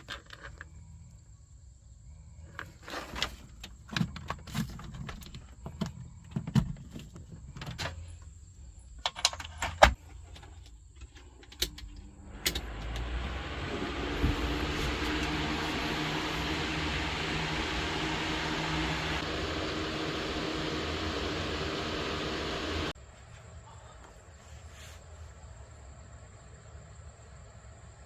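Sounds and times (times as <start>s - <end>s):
steady rushing noise with hum: 12.3s - 23.0s.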